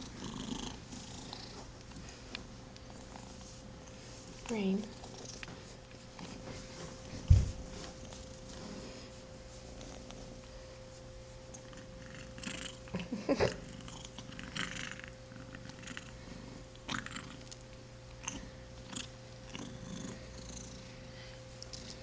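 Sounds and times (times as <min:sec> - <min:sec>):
kitten purring: 0:00.0 - 0:01.8, 0:04.7 - 0:05.5, 0:11.6 - 0:16.2, 0:16.9 - 0:17.6, 0:18.2 - 0:20.9.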